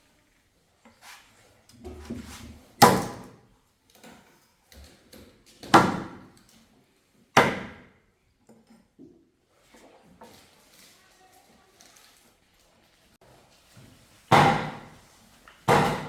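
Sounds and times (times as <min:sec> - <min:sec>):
loud sharp knocks: 0:14.3 - 0:14.9, 0:15.7 - 0:16.0.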